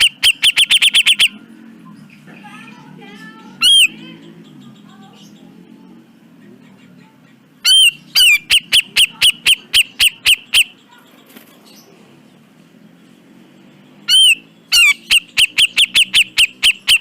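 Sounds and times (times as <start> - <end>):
bird calling sharp notes: 0.0 - 1.6, 3.5 - 4.5, 7.6 - 10.9, 14.0 - 17.0.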